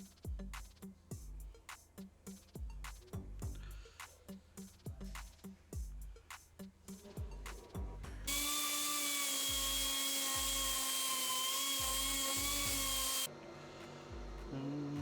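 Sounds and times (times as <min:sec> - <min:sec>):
background music with a beat: 0:00.0 - 0:08.3
power tool whining: 0:08.3 - 0:13.3.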